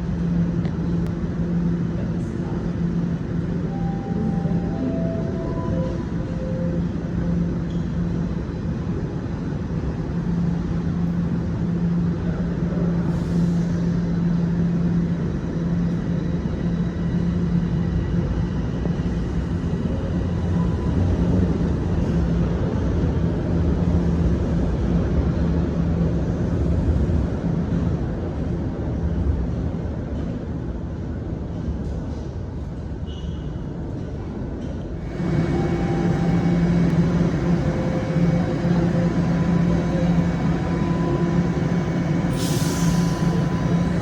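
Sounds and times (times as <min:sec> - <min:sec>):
subway train hum and rumble: 0:00.0 - 0:44.0
faint high whine: 0:35.0 - 0:44.0.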